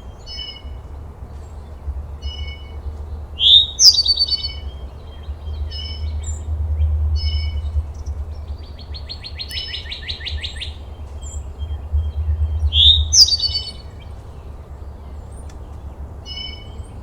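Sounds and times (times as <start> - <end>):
birds chirping: 0.0 - 17.0
steady low rumble: 0.0 - 17.0
bird sweeping call: 3.4 - 14.5.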